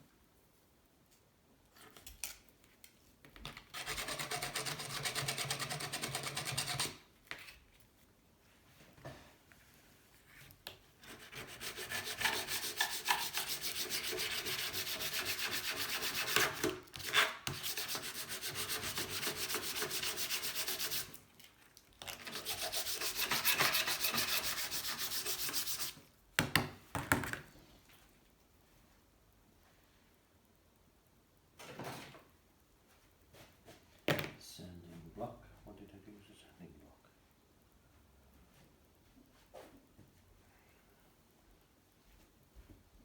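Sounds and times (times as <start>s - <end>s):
hand rubbing strokes: 22.3s - 26.0s.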